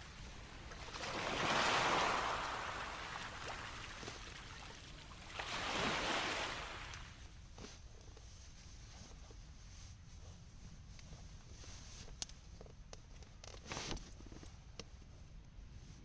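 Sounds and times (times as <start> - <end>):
sea waves washing onto shore: 0.0 - 7.2.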